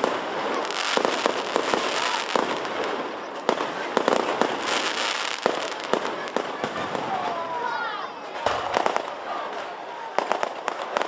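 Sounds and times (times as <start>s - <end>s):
fireworks bursting: 0.0s - 7.6s, 8.3s - 11.0s.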